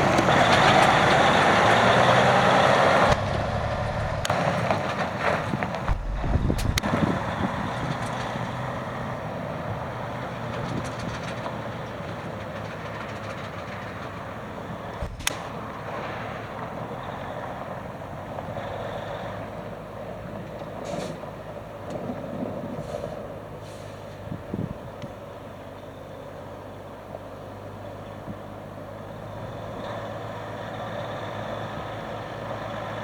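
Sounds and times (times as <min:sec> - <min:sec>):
diesel truck engine idling: 0:00.0 - 0:10.6
sharp click: 0:05.9 - 0:06.9, 0:15.0 - 0:15.6.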